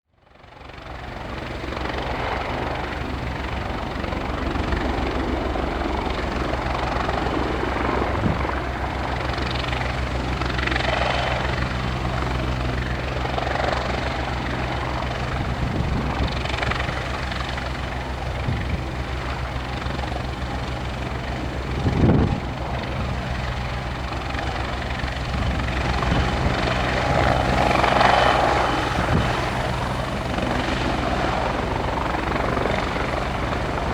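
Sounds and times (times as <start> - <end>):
helicopter turbine and rotor: 0.1 - 33.9
wind buffeting microphone: 2.2 - 33.9.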